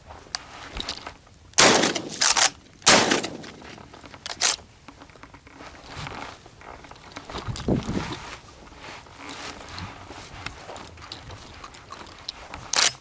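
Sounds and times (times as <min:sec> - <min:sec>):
shotgun blasts: 0:01.6 - 0:03.7.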